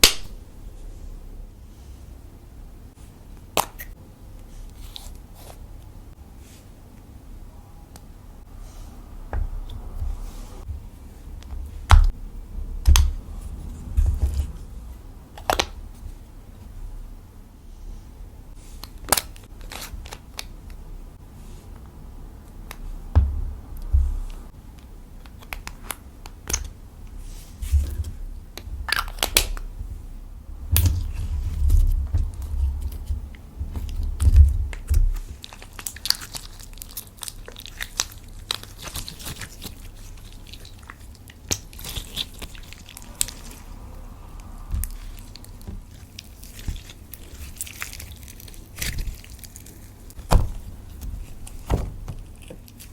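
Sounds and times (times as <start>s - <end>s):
dull thumps of hands pressing: 23.1s - 24.5s, 50.2s - 52.6s.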